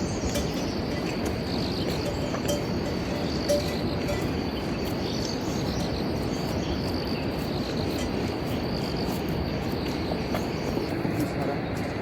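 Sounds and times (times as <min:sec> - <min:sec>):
insects trilling: 0:00.0 - 0:11.8.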